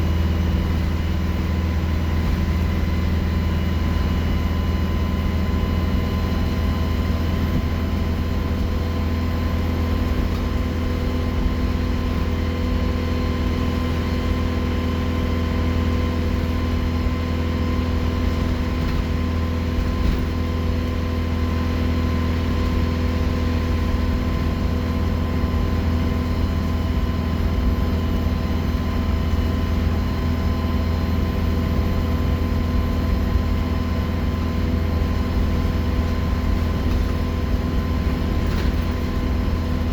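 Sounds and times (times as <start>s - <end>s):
bus engine droning: 0.0s - 39.9s.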